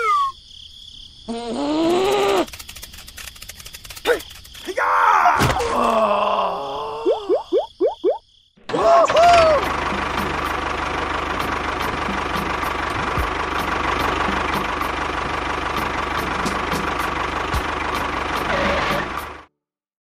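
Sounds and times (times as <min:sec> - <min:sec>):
tractor engine idling: 0:08.7 - 0:19.5.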